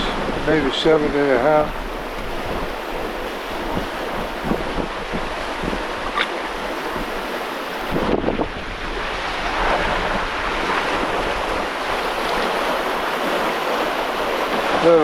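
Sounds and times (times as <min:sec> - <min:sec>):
water splashing along boat hull: 0:00.0 - 0:15.0
wind buffeting microphone: 0:00.0 - 0:15.0.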